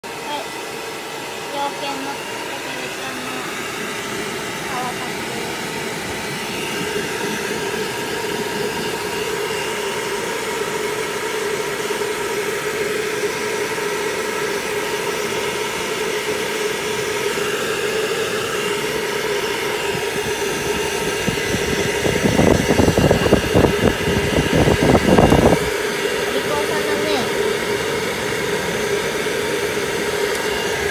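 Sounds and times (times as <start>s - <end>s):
pet blow dryer whining: 0.0s - 30.9s.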